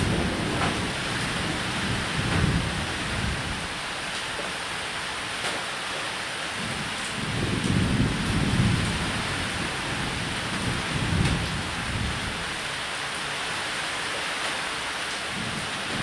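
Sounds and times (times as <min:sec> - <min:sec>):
thunder rumbling: 0:00.0 - 0:03.9, 0:07.2 - 0:12.6, 0:15.3 - 0:16.0
heavy rain on a roof: 0:00.0 - 0:16.0.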